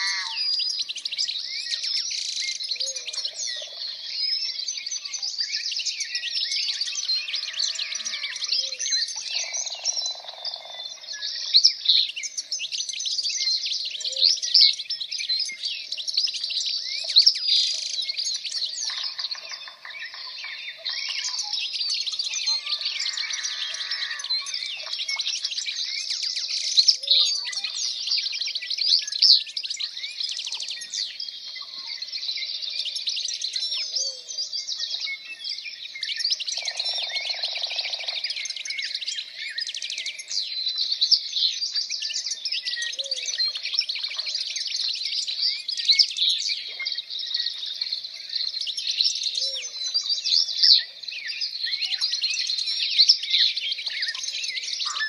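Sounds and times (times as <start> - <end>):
lower repeated bird call: 0.0 - 5.1, 5.9 - 11.5, 17.9 - 28.0, 36.2 - 40.3
songbirds chirping: 0.0 - 55.0.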